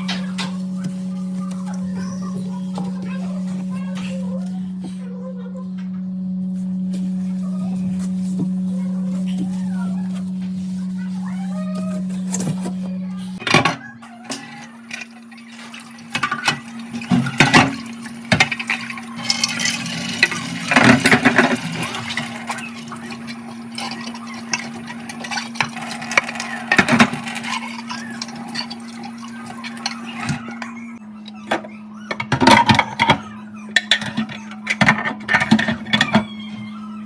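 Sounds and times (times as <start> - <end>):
steady low hum: 0.0 - 31.9
water running into a sink: 14.3 - 30.4.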